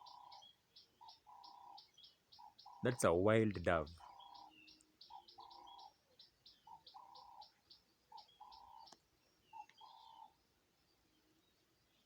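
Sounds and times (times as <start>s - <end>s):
small bird chirping: 0.0s - 12.0s
dove cooing: 6.7s - 7.5s.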